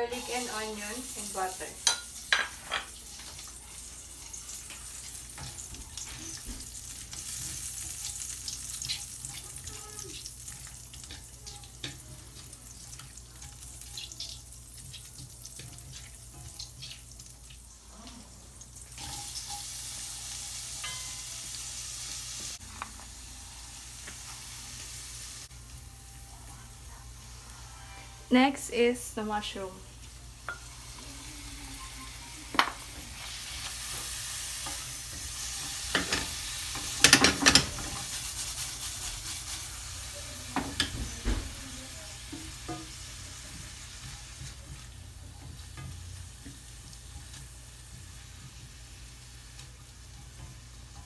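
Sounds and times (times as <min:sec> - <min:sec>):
onions sizzling in a pan: 0:00.0 - 0:51.0
utensil clicking against pan: 0:35.8 - 0:38.0.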